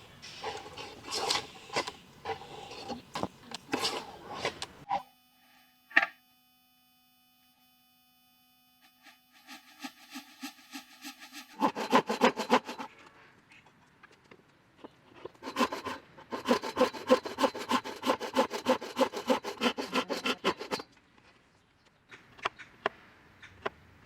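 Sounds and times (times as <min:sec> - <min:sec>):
wood being hand-sawn: 0:00.0 - 0:05.0, 0:09.1 - 0:13.0, 0:14.8 - 0:20.9.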